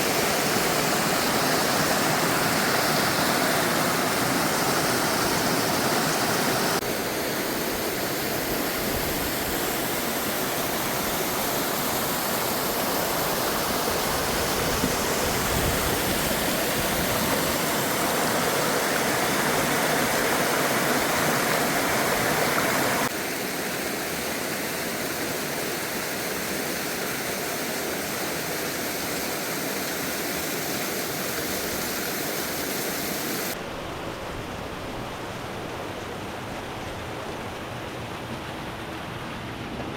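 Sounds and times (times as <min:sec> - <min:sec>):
waterfall pouring into pool: 0:16.5 - 0:24.8.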